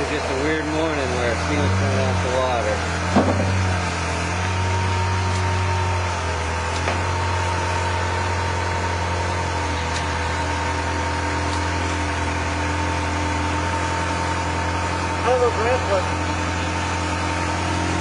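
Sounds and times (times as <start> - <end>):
car engine idling: 0.0 - 18.0
sharp knock: 3.1 - 3.8.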